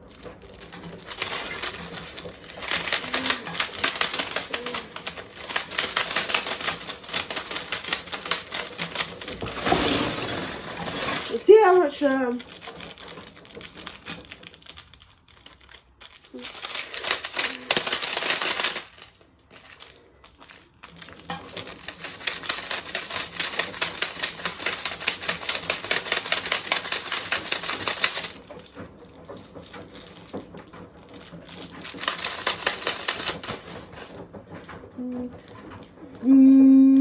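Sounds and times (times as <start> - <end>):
washing machine rattling and clattering: 0.0 - 36.2.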